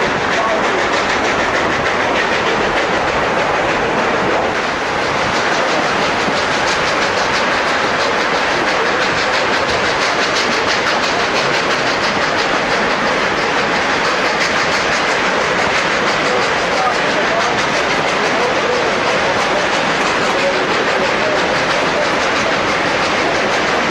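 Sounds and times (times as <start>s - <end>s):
train wheels clattering on rails: 0.0s - 23.9s.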